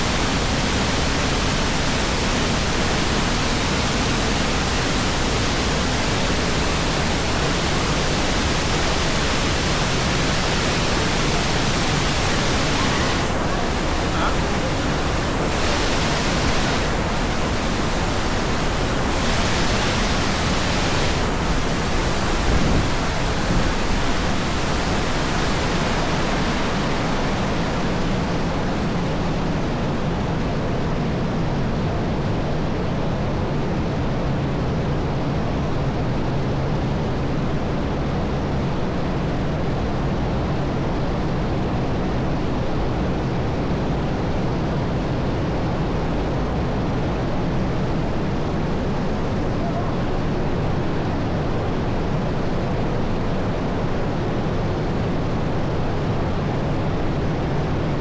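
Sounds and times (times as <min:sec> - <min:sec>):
waterfall rushing: 0:00.0 - 0:31.4.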